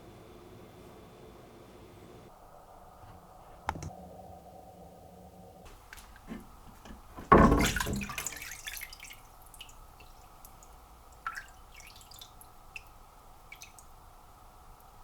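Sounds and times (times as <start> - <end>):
water splashing: 5.7 - 14.3
water dripping: 5.7 - 15.0.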